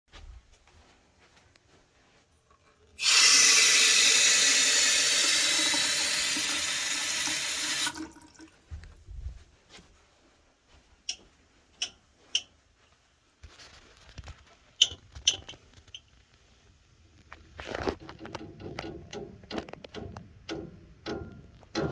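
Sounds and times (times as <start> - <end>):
water pipes ticking and clicking: 1.3 - 9.0, 10.7 - 13.0, 14.0 - 16.4, 17.3 - 21.9
water tap running: 3.0 - 8.5.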